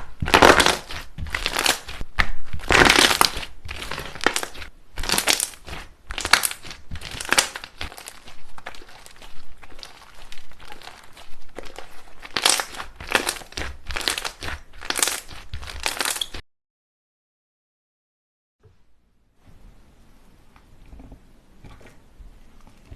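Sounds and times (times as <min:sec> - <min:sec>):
slime crackling and popping: 0:00.0 - 0:16.4.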